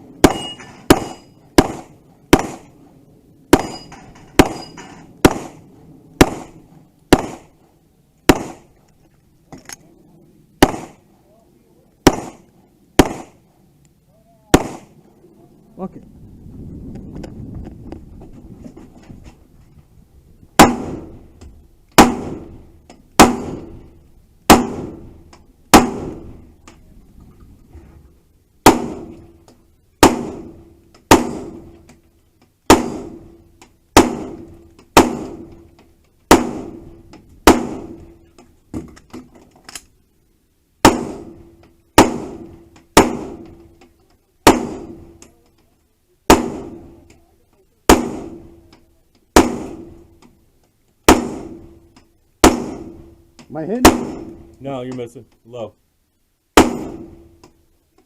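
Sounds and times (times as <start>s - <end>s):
gunshots with ringing tail: 0.0s - 2.8s, 3.5s - 7.6s, 8.3s - 8.7s, 10.6s - 11.1s, 12.0s - 13.4s, 14.5s - 15.0s, 20.6s - 21.2s, 22.0s - 22.6s, 23.2s - 23.9s, 24.5s - 26.5s, 28.6s - 29.3s, 30.0s - 31.7s, 32.7s - 33.4s, 34.0s - 35.6s, 36.3s - 38.2s, 40.8s - 43.7s, 44.4s - 45.2s, 46.3s - 47.0s, 47.9s - 48.6s, 49.4s - 50.1s, 51.1s - 53.2s, 53.8s - 54.5s, 56.6s - 57.4s.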